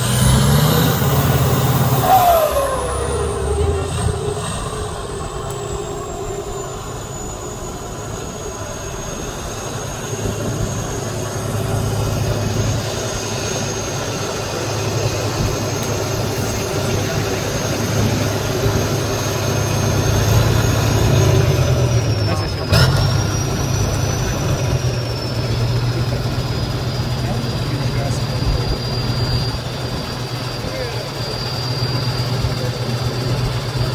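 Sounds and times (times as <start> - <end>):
diesel truck engine whining: 0.0 - 33.9.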